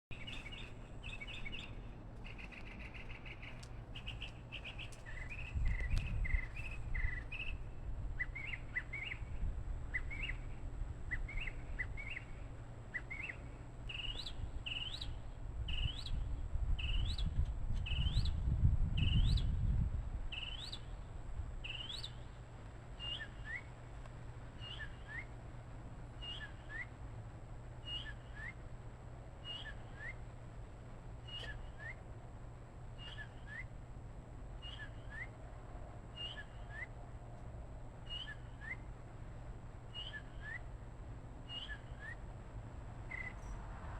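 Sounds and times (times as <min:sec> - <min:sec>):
bird chirping: 0:00.1 - 0:18.4, 0:20.3 - 0:21.0, 0:21.6 - 0:22.3, 0:23.0 - 0:23.8, 0:24.6 - 0:25.4, 0:26.2 - 0:27.0, 0:27.8 - 0:28.6, 0:29.4 - 0:30.3, 0:31.2 - 0:32.0, 0:33.0 - 0:33.8, 0:34.6 - 0:35.4, 0:36.1 - 0:37.0, 0:38.0 - 0:38.9, 0:39.9 - 0:40.7, 0:41.5 - 0:42.3, 0:43.1 - 0:43.7.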